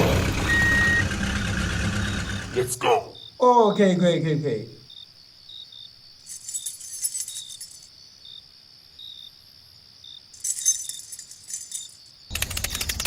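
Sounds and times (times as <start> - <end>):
insect chirring: 3.0 - 12.3
high metallic jingling: 6.2 - 7.9, 10.3 - 12.2.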